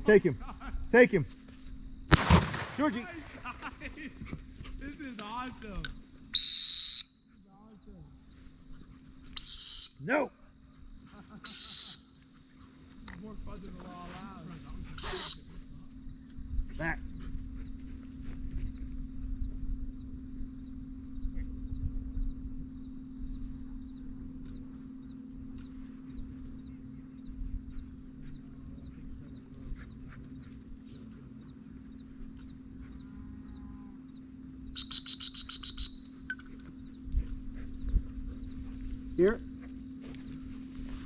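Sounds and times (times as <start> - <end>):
insects buzzing: 0.0 - 41.0
trilled dog whistle blast: 6.4 - 7.3, 9.4 - 10.1, 11.5 - 12.4, 15.0 - 15.7, 34.7 - 36.5.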